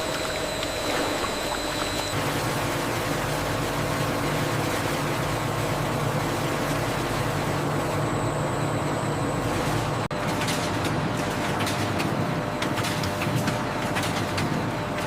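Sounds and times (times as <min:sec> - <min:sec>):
machinery humming: 0:00.0 - 0:10.2.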